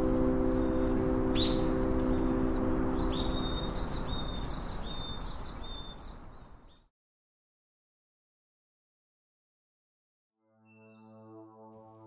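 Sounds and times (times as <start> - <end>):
background music chord: 0.0 - 5.2, 10.4 - 12.0
birds chirping: 0.0 - 6.9.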